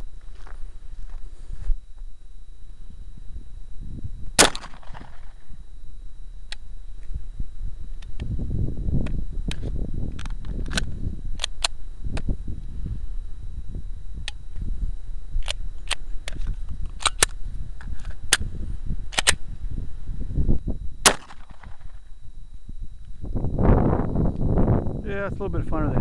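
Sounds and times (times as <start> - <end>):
steady low rumble: 0.0 - 26.0
pistol shots: 4.4 - 5.3, 21.0 - 21.8.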